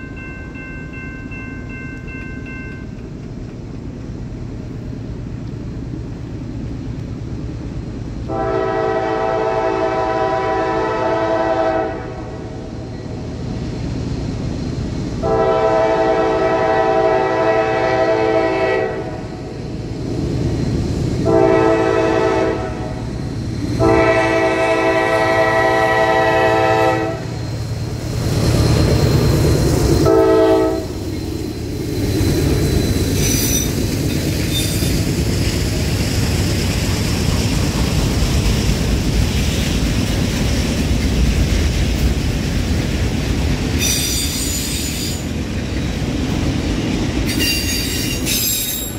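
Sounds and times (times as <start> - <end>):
locomotive engine rumble: 0.0 - 48.9
locomotive air horn: 8.3 - 12.5, 15.2 - 19.2, 21.2 - 23.0, 23.8 - 27.3, 30.0 - 31.0
high wheel squeal: 26.8 - 35.3, 43.8 - 45.4, 47.2 - 48.9.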